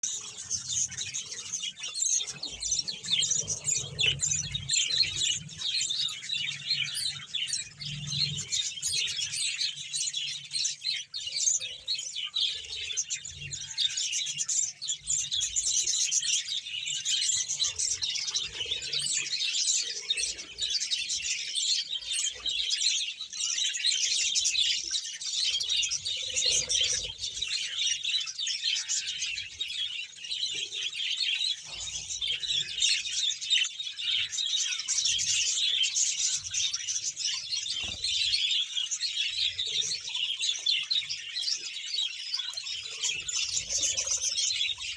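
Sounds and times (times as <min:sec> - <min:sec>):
budgerigars chirping and chattering: 0:00.0 - 0:44.9.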